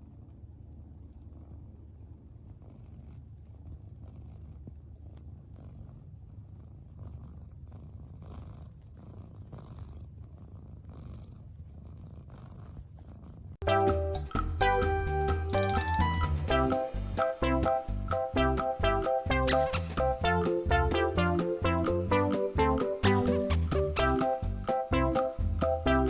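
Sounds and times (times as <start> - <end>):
cat purring: 2.4 - 13.6.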